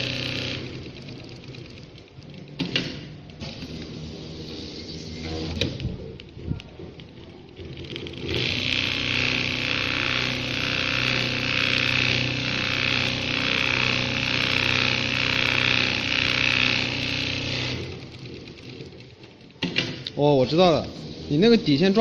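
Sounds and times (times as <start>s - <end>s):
sewing machine stitching: 0.0s - 1.9s, 7.6s - 20.0s.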